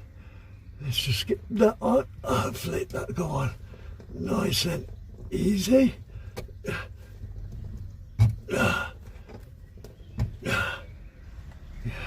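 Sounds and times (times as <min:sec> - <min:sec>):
man grunting with effort: 0:08.4 - 0:09.0.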